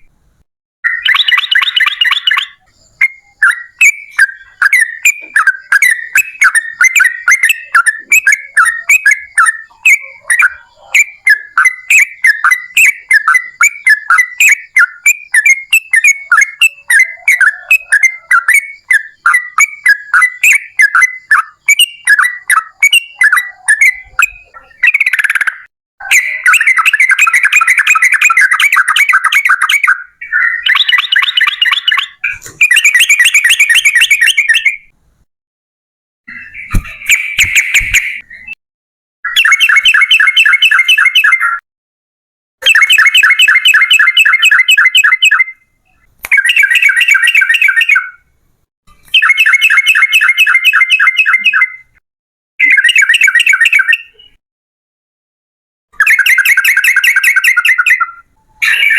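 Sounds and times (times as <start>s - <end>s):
bulbul singing bubbly chirps: 0.9s - 34.9s, 46.3s - 48.2s.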